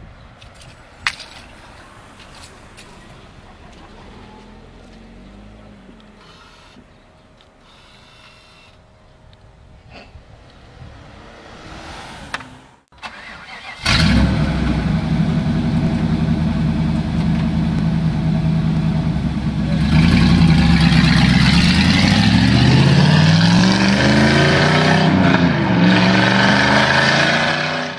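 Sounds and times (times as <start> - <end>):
car engine revving and pulling away: 3.2 - 6.6, 10.4 - 27.9
car engine starting and idling: 10.6 - 27.1.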